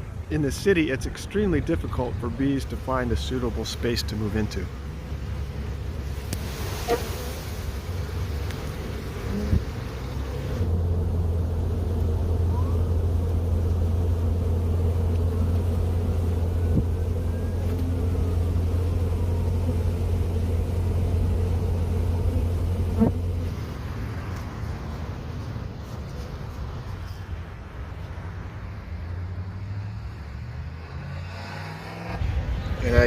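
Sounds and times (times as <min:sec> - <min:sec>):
engine idling rumble: 0:07.7 - 0:27.3.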